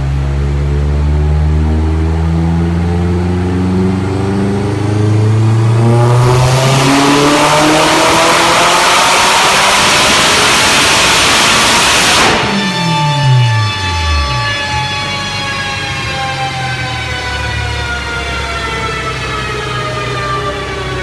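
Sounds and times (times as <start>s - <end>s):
car engine revving on dyno: 0.0s - 21.0s
heavy rushing noise: 9.8s - 17.1s.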